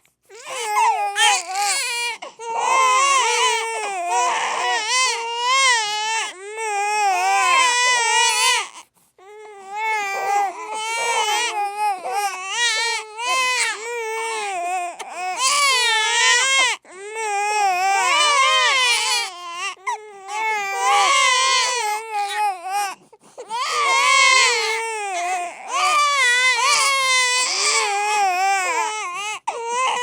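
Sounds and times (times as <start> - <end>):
baby crying: 0.3 - 30.0.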